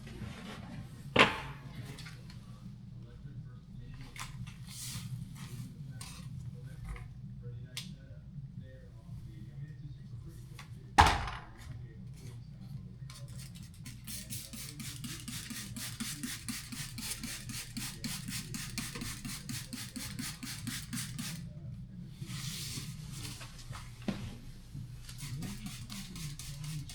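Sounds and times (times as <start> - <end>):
brush scrubbing: 13.2 - 21.4, 25.0 - 26.9.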